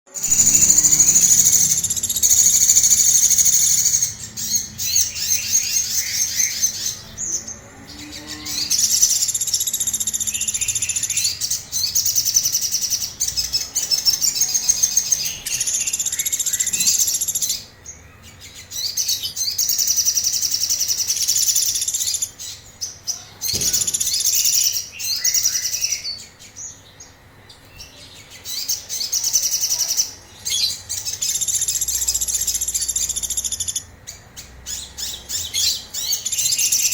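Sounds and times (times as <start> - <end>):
bird singing rapid high notes: 0.1 - 26.4.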